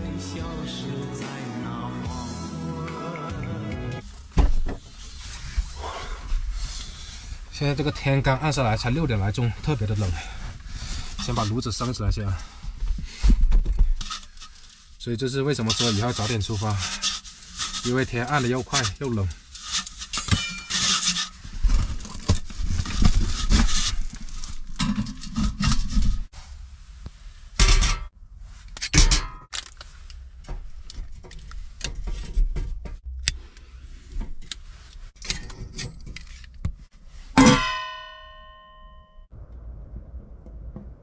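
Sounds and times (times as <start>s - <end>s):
metal stove parts knocking and scraping: 15.8s - 26.3s, 27.6s - 28.1s, 28.8s - 29.7s, 35.2s - 38.9s
ringing metal clang: 37.4s - 39.3s.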